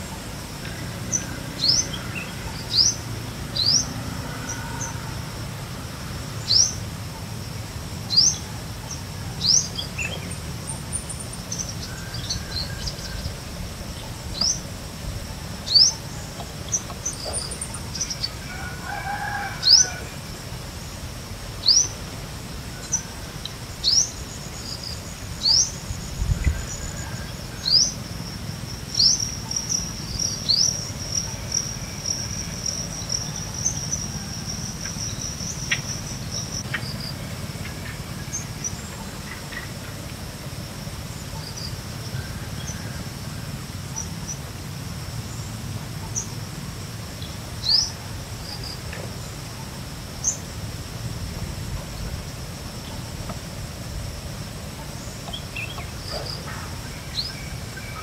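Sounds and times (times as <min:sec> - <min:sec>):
insect trill: 0:00.0 - 0:58.0
distant rooster crowing: 0:00.8 - 0:06.7, 0:11.8 - 0:13.4, 0:17.7 - 0:20.6, 0:26.3 - 0:28.5, 0:31.0 - 0:35.3, 0:42.0 - 0:43.8.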